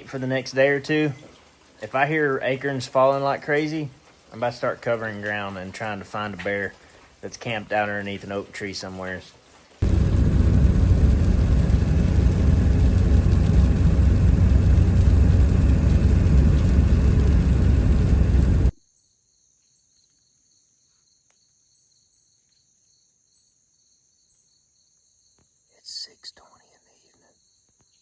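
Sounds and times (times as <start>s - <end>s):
loud low rumbling: 9.8s - 18.8s
faint high insect calls: 18.7s - 28.0s.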